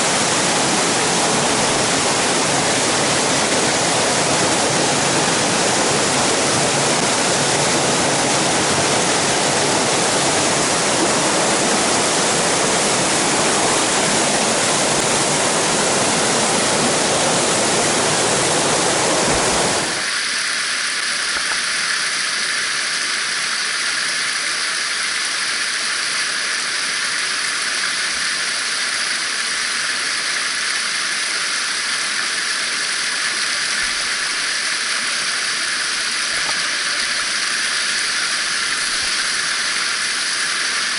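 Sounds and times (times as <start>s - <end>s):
mountain stream rushing: 0.0s - 20.1s.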